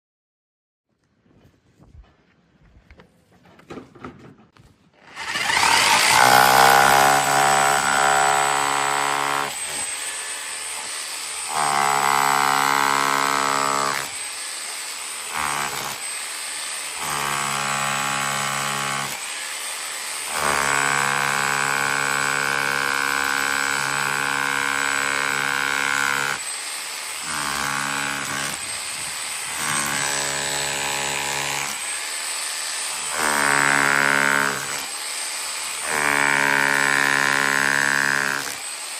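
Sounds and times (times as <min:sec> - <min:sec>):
rotary hammer running: 0:05.1 - 0:07.9.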